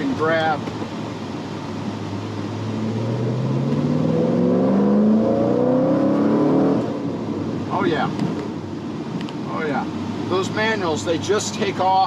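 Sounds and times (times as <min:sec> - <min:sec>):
car engine accelerating: 0:01.8 - 0:07.6.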